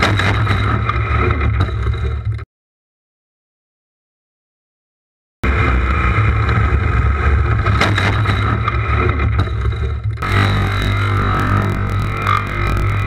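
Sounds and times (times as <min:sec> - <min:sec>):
clicks: 0:10.2 - 0:13.0
motorcycle engine running: 0:10.2 - 0:13.0.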